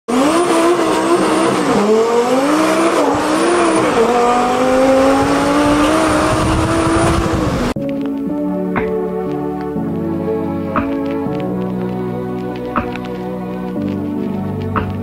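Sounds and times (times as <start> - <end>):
car engine accelerating through gears: 0.1 - 7.8.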